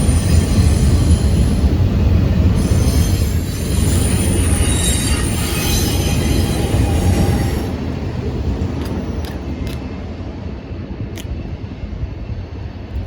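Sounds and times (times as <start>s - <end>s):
high metallic squealing scrape: 2.6s - 7.8s.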